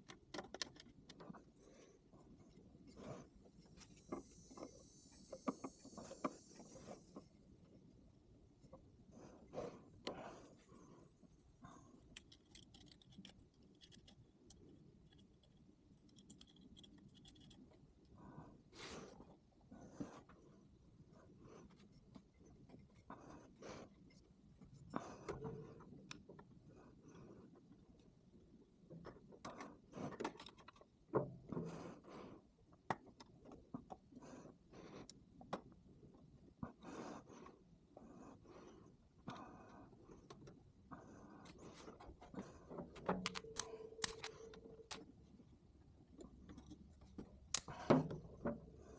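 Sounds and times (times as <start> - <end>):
hand tool scraping and clicking: 43.2 - 45.0.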